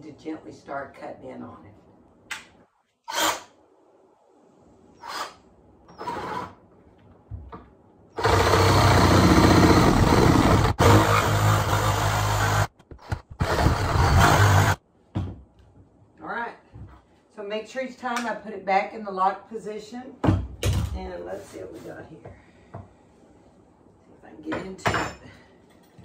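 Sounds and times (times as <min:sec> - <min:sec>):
power saw cutting wood: 0:08.2 - 0:12.7, 0:13.4 - 0:14.8.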